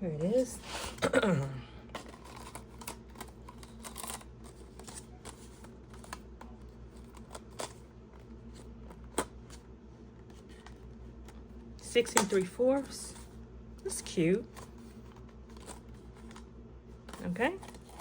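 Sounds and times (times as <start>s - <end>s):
low steady hum: 0.0s - 18.0s
jewelry clicking and rustling: 2.0s - 6.3s.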